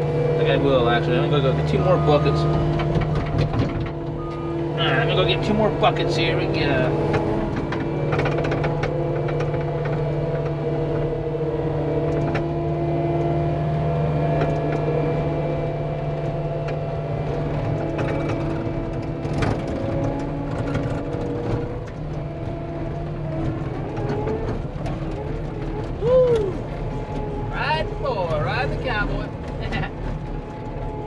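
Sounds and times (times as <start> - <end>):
diesel engine running: 0.0 - 31.0
metal clanks and knocks: 1.4 - 4.5.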